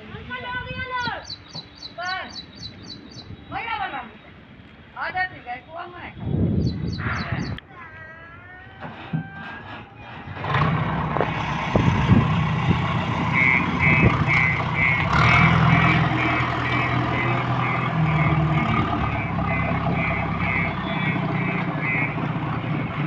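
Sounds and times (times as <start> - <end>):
engine knocks: 8.8 - 23.0
diesel engine running: 9.6 - 23.0
reversing alarm beeping: 13.3 - 23.0.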